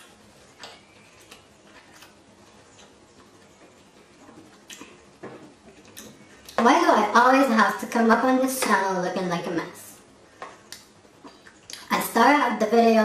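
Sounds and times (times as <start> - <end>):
person chewing food: 0.0 - 6.6.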